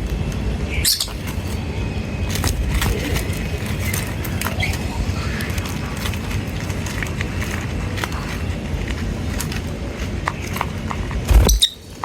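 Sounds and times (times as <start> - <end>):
small birds chirping: 0.7 - 1.7
low rumble: 11.3 - 11.7
sharp clicks: 11.3 - 11.7.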